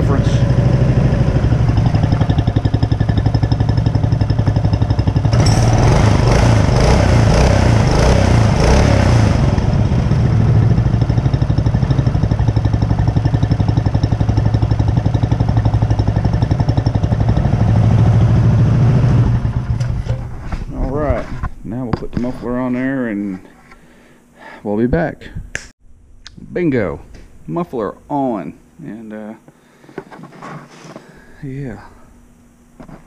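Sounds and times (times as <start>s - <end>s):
small engine revving and idling: 0.0s - 20.0s.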